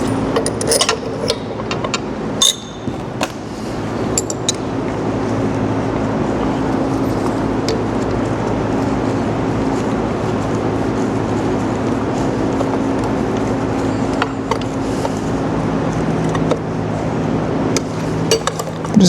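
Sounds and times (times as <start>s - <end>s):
loud machinery hum: 0.0s - 19.0s.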